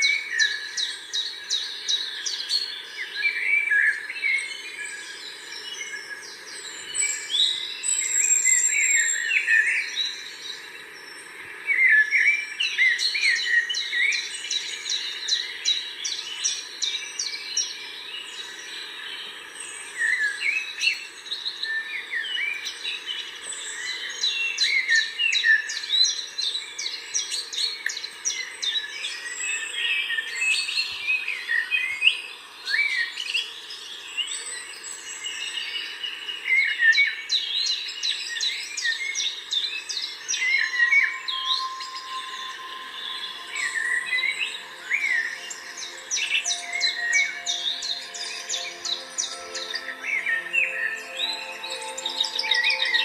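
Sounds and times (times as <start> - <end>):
small birds chirping and singing: 0.0 - 53.0.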